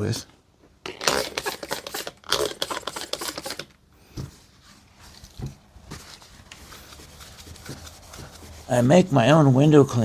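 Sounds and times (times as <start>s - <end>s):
faint rubbing: 2.9s - 9.4s.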